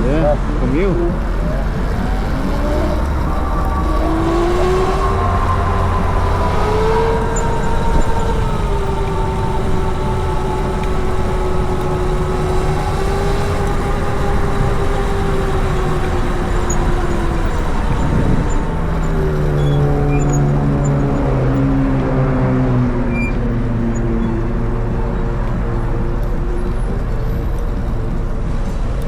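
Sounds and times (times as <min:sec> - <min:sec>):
traffic engine tone: 0:00.0 - 0:29.0
wind and road rush: 0:00.0 - 0:29.0
electric motor whine: 0:01.2 - 0:20.7.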